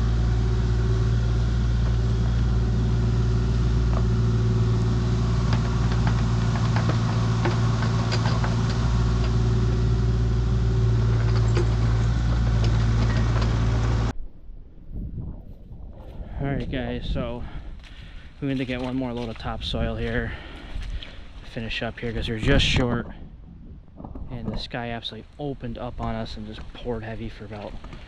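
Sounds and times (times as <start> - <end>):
diesel engine running: 0.0 - 14.1, 16.6 - 22.9.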